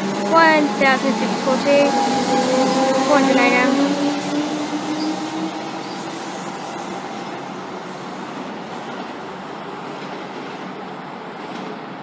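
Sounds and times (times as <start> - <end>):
electric train motor whine: 0.0 - 8.1
train running noise: 0.0 - 12.0.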